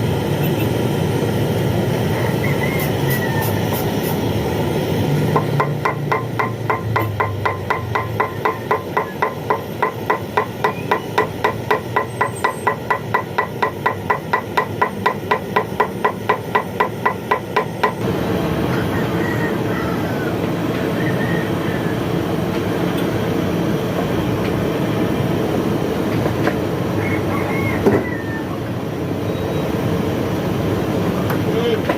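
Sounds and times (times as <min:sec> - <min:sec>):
steady background noise: 0:00.0 - 0:31.9
rapid metallic tapping: 0:05.4 - 0:18.0.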